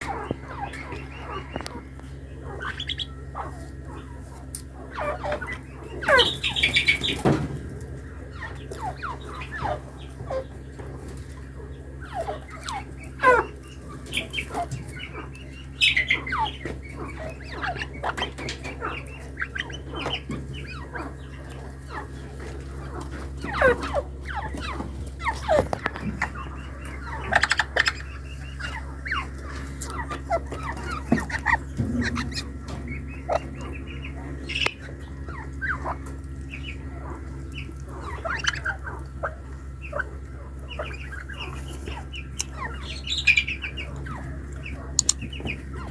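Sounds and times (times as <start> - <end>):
partridges calling: 0.0 - 45.9
steady low hum: 0.0 - 45.9.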